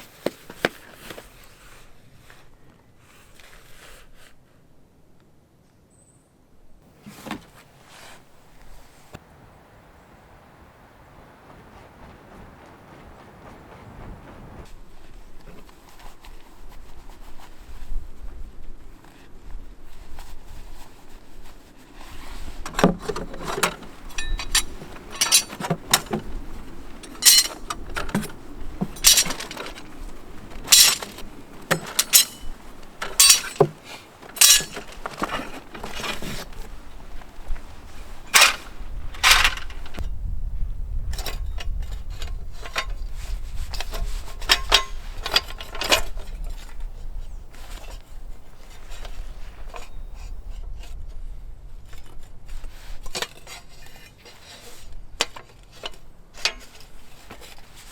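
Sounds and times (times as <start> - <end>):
hard objects clinking together: 23.6 - 26.2, 27.0 - 29.9, 30.6 - 36.2.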